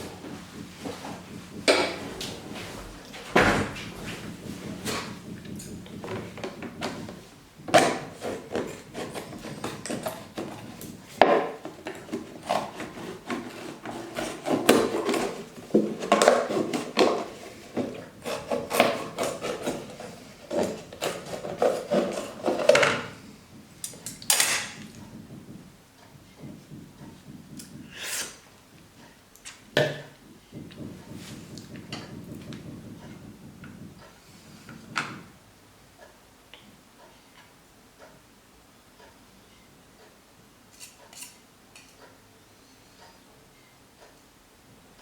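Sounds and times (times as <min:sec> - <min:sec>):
objects knocking and clattering: 0:00.0 - 0:35.4.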